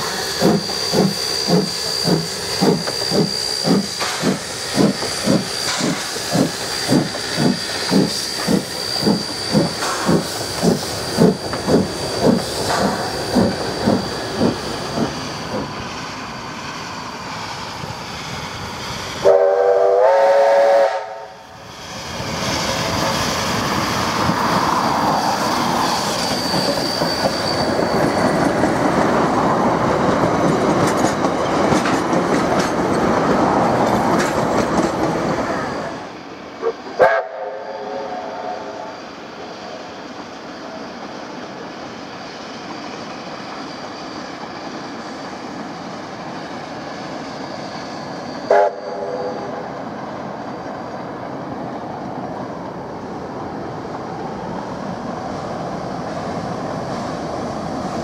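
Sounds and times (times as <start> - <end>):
chime steam whistle: 0.0 - 12.0, 19.2 - 21.4, 25.0 - 28.4, 36.6 - 39.5, 46.3 - 49.7
train wheels clickety-clack on rails: 0.0 - 16.0, 22.1 - 37.3
steam locomotive exhaust beats: 0.0 - 39.4, 46.7 - 49.8.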